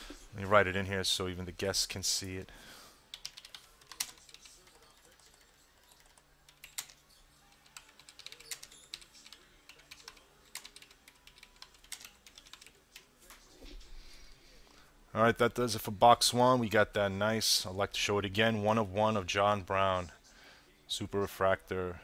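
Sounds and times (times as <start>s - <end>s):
typing on computer keyboard: 3.1s - 7.0s, 7.6s - 13.1s.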